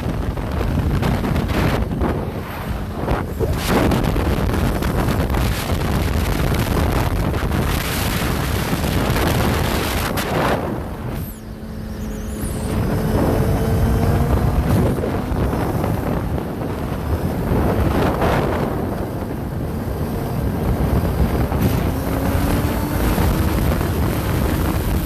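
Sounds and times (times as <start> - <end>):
motorcycle engine: 0.0 - 25.0
road noise: 0.0 - 25.0
wind rushing over microphone: 0.0 - 25.0.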